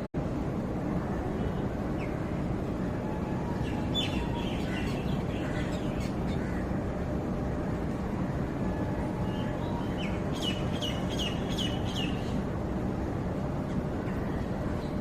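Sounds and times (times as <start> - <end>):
low background noise: 0.1 - 15.0.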